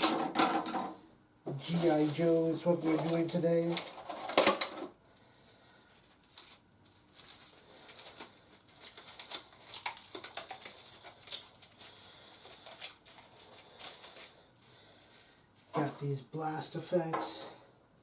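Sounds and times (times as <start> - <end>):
packaging rustling: 1.6 - 16.0.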